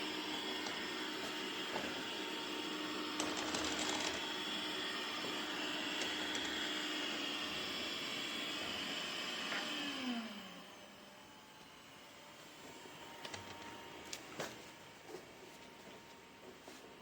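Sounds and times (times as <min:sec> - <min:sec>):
robot vacuum motor whirring: 0:00.0 - 0:11.1, 0:12.8 - 0:14.4.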